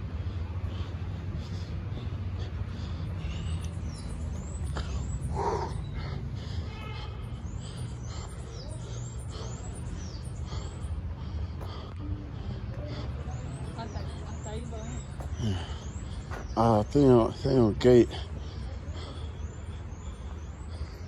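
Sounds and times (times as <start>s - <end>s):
steady low rumble: 0.0s - 16.6s
birds high short calls: 0.8s - 21.0s
bird harsh call: 3.1s - 11.0s.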